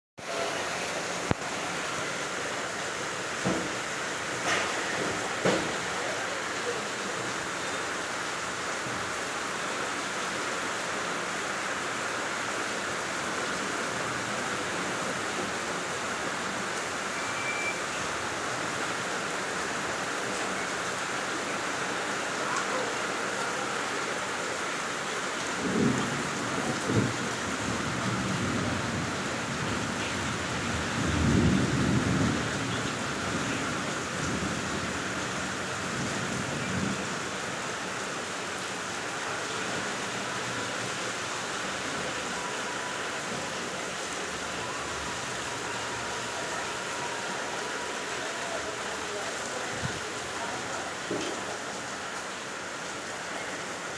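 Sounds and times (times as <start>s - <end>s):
steady rain falling: 0.2s - 53.9s
thunder rumbling: 25.6s - 33.5s.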